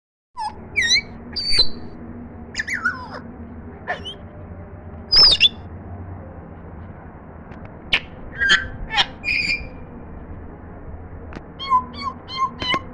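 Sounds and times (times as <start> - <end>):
parrot whistles and squawks: 0.4 - 1.9, 2.6 - 3.2, 3.9 - 4.2, 5.1 - 5.6, 7.9 - 9.8, 11.6 - 12.9.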